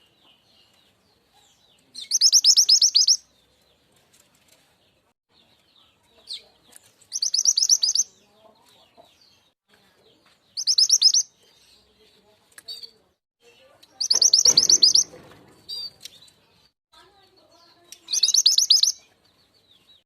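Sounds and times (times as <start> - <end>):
faint bird chirps: 0.0 - 3.6, 5.5 - 9.1, 10.0 - 19.9
songbird calling in fast runs: 14.0 - 15.9.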